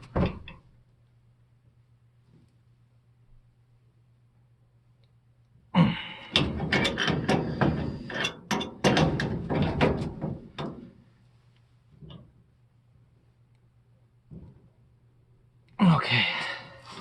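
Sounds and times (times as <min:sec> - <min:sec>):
wrenches clanking on metal pipe: 0:06.2 - 0:11.0.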